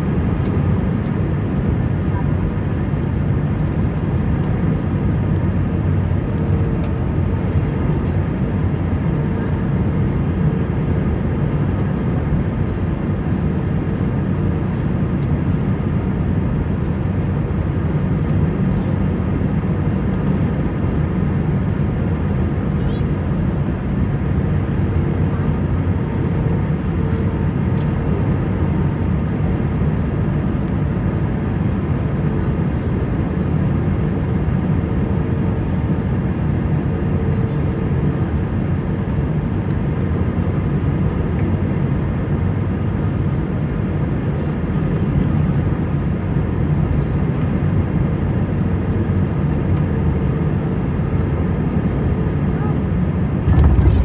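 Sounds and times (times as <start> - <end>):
jet engine cabin rumble: 0.0 - 54.0
faint hum: 52.6 - 54.0.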